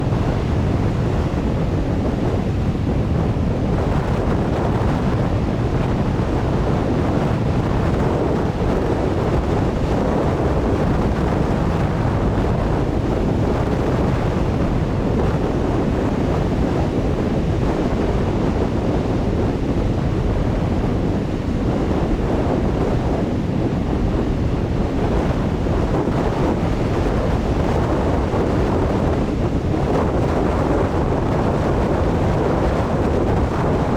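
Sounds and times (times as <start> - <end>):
strong wind buffeting microphone: 0.0 - 33.9.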